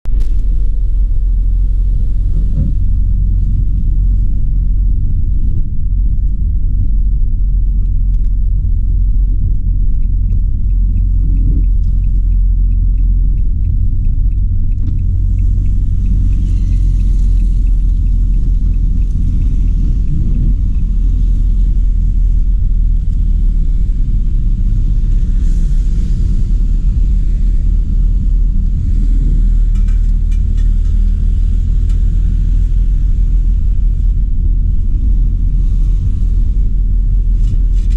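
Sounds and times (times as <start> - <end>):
car road and engine rumble: 0.0 - 37.9
faint regular ticking: 7.3 - 25.4.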